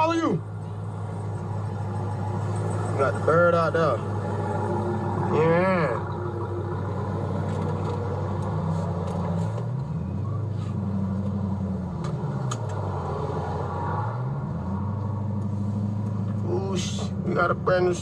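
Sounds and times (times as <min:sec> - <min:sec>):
car engine droning: 0:00.0 - 0:18.0.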